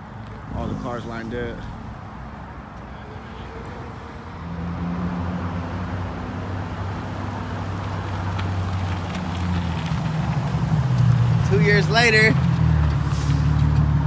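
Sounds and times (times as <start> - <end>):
car engine low drone: 0.0 - 14.0.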